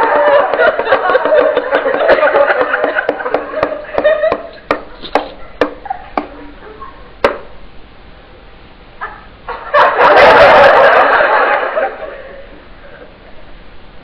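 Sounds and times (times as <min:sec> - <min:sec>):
knife striking tabletop: 0:00.5 - 0:06.3.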